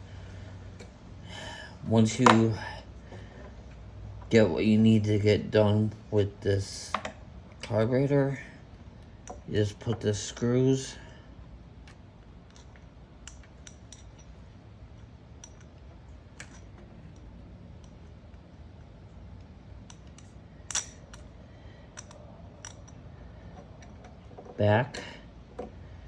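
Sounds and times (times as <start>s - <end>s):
small metal parts clicking: 11.8s - 24.6s.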